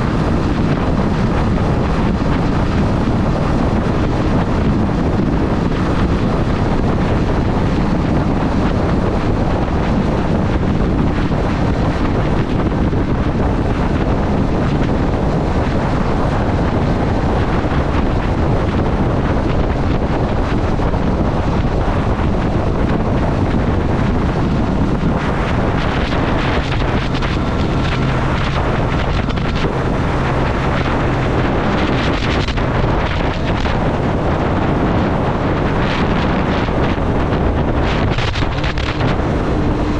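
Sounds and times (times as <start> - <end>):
wind rushing over microphone: 0.0 - 39.9
motorcycle engine running: 20.9 - 39.9.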